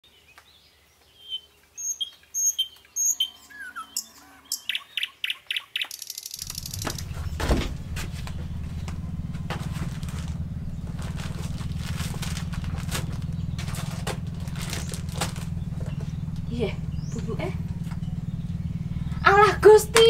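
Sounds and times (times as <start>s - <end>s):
birds chirping: 0.1s - 20.0s
steady low hum: 6.4s - 20.0s.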